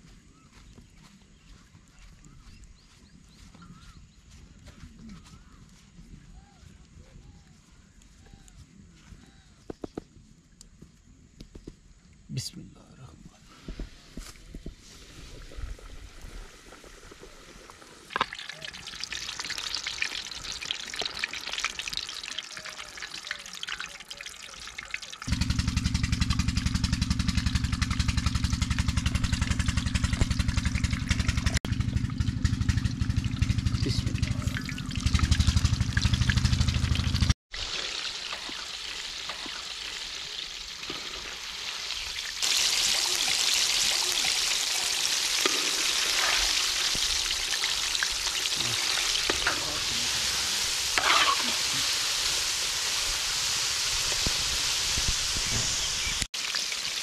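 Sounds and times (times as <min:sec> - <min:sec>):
chicken deep-frying in oil: 0:14.8 - 0:57.0
loud low hum: 0:25.3 - 0:37.4.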